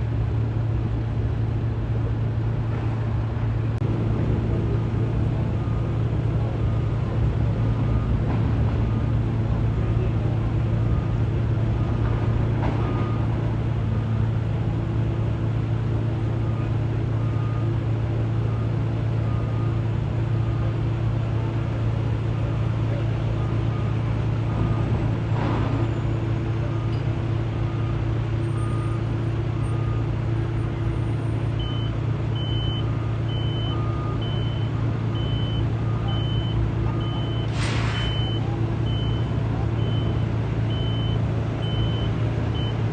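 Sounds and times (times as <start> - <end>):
dump truck engine droning: 0.0 - 42.9
warning alarm beeping: 31.6 - 42.8.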